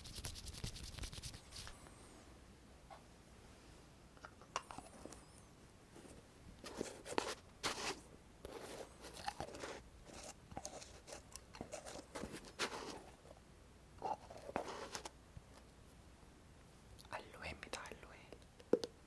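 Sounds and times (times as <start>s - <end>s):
hands crackling and rubbing: 0.0s - 1.8s.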